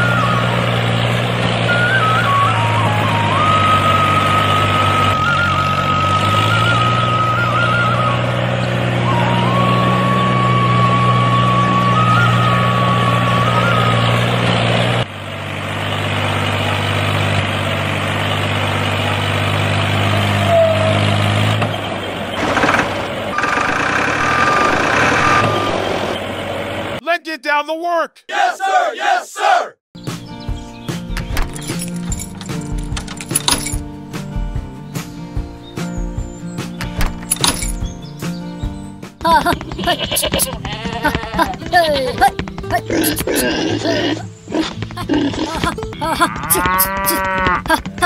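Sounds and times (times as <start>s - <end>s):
tractor engine running: 0.0s - 27.0s, 31.1s - 35.5s, 36.2s - 48.0s
wavering whistle-like tune: 1.6s - 14.4s, 24.2s - 25.9s.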